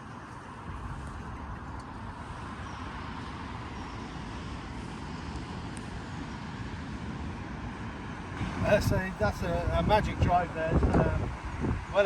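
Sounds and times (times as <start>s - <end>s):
road traffic rumble: 0.0s - 12.0s
wind buffeting microphone: 8.3s - 12.0s.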